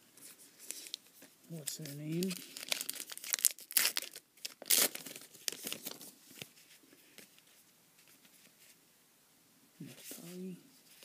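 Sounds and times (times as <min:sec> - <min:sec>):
foil wrapper crinkling and tearing: 0:01.6 - 0:06.1.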